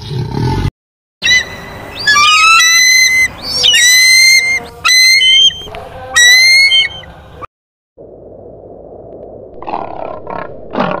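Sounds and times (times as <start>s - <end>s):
eagle whistled calls: 1.2s - 7.1s.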